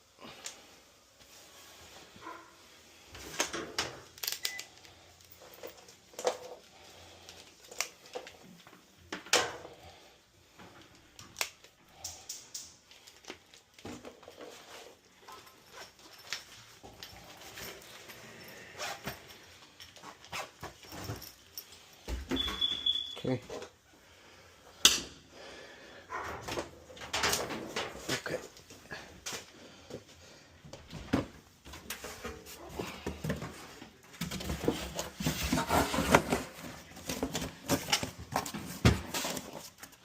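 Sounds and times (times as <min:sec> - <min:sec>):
tools and parts clicking: 0:03.4 - 0:06.5.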